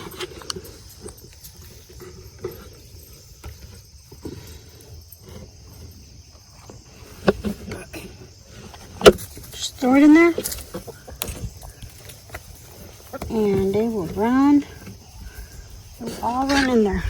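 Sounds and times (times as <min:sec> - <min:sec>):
handling noise: 0:00.0 - 0:17.0
chickens clucking: 0:10.5 - 0:15.4.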